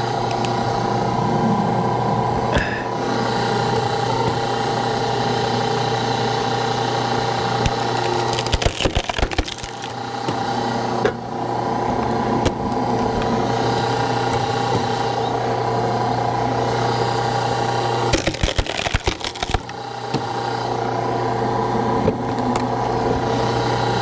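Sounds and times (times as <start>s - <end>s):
hydraulic log splitter running: 0.0s - 24.0s
log cracking as it splits: 7.6s - 10.0s, 18.0s - 19.7s.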